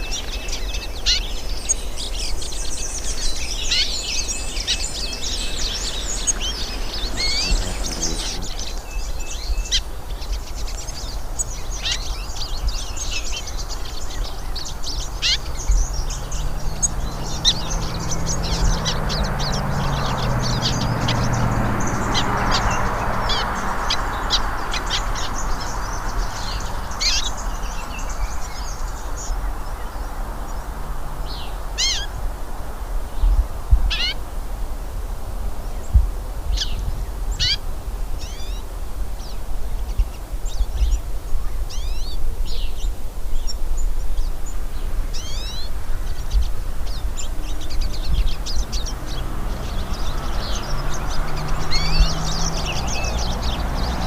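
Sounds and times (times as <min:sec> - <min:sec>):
songbirds chirping: 0:00.0 - 0:54.0
low rumbling noise: 0:01.5 - 0:12.8.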